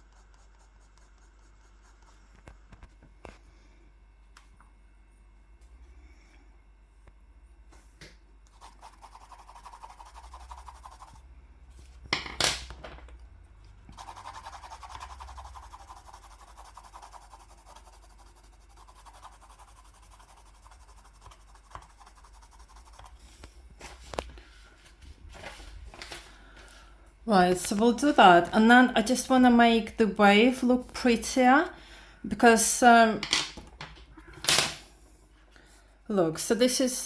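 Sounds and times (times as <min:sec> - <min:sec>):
pencil scratching on paper: 0:00.0 - 0:02.4, 0:08.5 - 0:11.2, 0:13.9 - 0:24.0.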